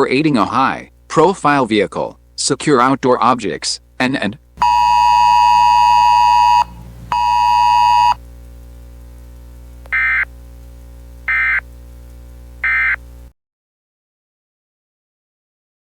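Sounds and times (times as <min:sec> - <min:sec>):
constant low hum: 0:00.0 - 0:13.3
steady electronic beep: 0:04.6 - 0:08.2
raspy data bursts: 0:09.9 - 0:10.3, 0:11.3 - 0:11.6, 0:12.6 - 0:13.0.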